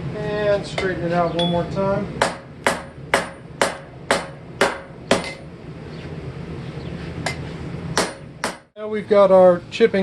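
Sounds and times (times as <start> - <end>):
steady low hum: 0.0 - 10.0
hammer striking steel: 0.8 - 5.5, 8.0 - 8.7.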